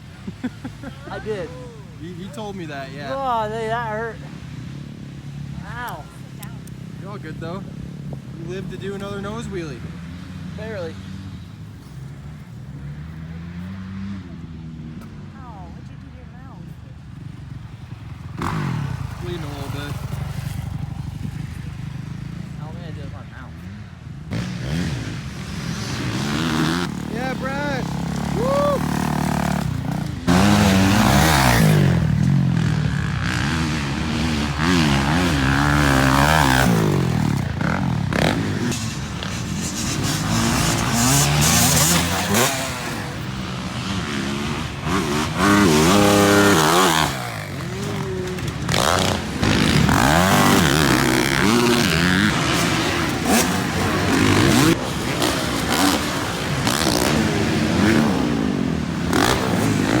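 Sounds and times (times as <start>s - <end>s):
dirt bike engine revving: 17.2s - 60.0s.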